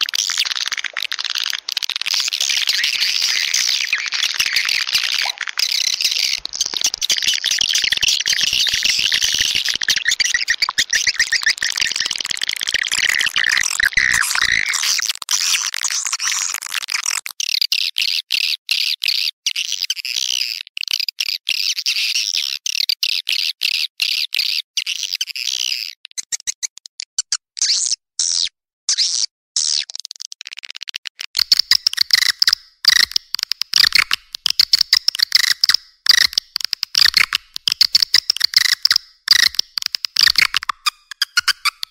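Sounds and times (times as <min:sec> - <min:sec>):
swiftlet chirping and twittering: 0:00.0 - 0:15.0, 0:31.4 - 0:41.9.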